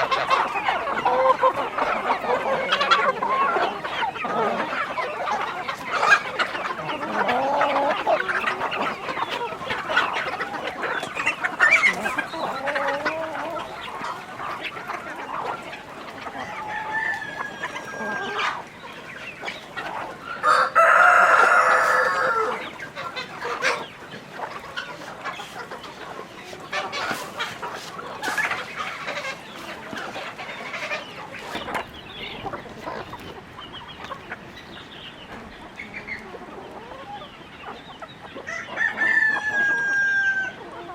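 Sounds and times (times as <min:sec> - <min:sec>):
chickens clucking: 0:00.0 - 0:40.9
rooster crowing: 0:20.4 - 0:22.6, 0:38.5 - 0:40.6.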